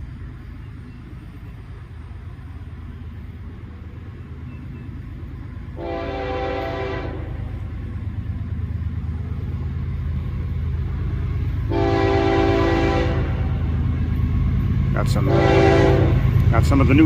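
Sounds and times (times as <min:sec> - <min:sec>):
freight train rumble: 0:00.0 - 0:17.0
train air horn blast: 0:05.8 - 0:07.5, 0:11.7 - 0:13.6, 0:15.2 - 0:16.2.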